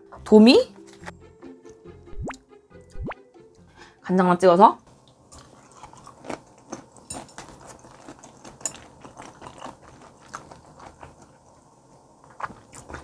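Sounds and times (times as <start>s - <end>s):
crisp chewing crunches: 5.4s - 11.4s.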